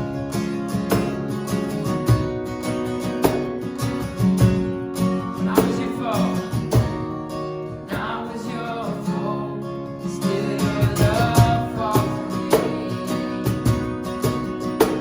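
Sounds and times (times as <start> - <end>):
strummed acoustic guitar: 0.0 - 15.0
person singing: 7.9 - 13.5.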